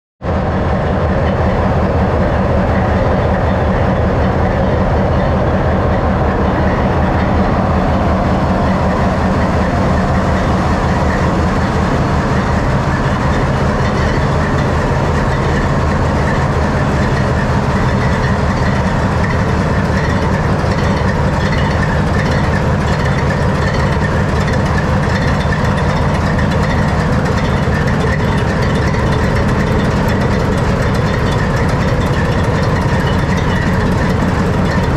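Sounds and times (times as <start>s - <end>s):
diesel locomotive engine idling: 0.2s - 34.9s.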